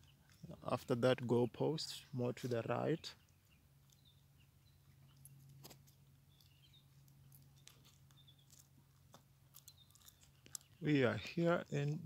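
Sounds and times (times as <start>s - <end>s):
faint high bird chirps: 6.2s - 8.6s.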